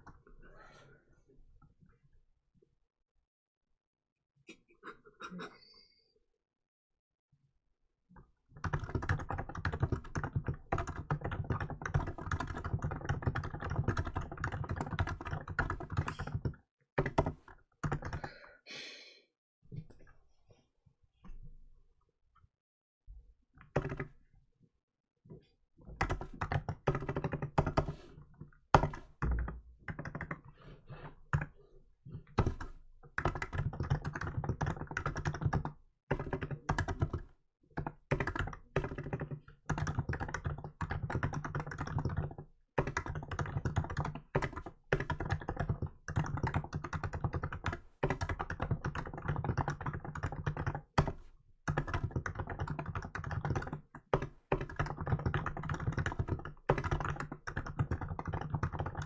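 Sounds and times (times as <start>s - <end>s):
keyboard typing: 8.6s - 18.4s, 23.6s - 24.1s, 25.9s - 31.6s, 32.2s - 59.0s.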